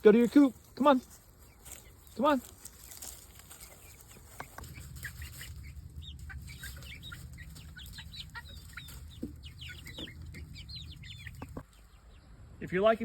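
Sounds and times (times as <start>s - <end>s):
hens clucking: 0.0s - 12.4s
steady low rumble: 4.6s - 11.6s.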